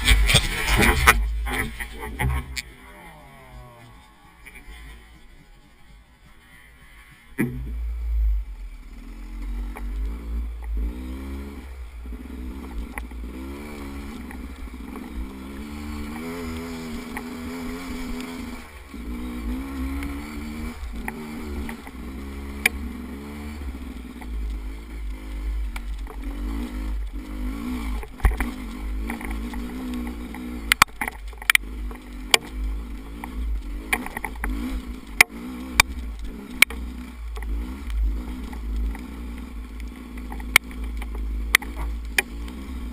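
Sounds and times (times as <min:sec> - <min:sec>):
motorcycle engine revving: 0:00.0 - 0:42.9
sharp knocks and clicks: 0:28.0 - 0:42.6.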